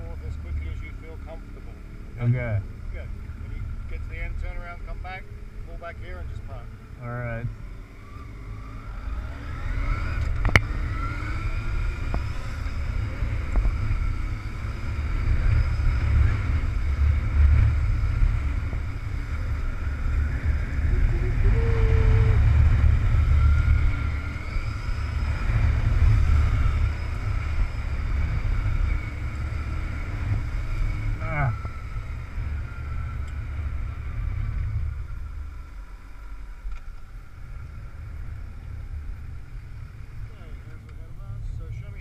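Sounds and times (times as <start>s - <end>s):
motorcycle engine running: 4.7s - 42.0s
wind buffeting microphone: 7.4s - 36.2s.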